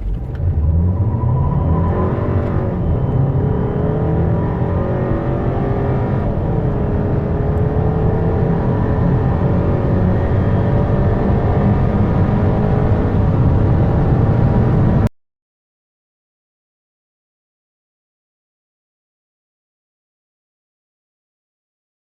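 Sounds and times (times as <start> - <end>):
car engine accelerating: 0.0 - 15.1.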